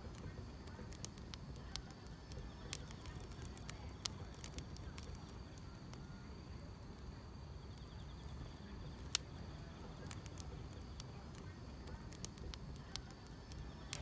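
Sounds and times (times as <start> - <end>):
fire popping: 0.0 - 14.0
insects chirring: 0.0 - 14.0
wood fire crackling: 0.0 - 14.0.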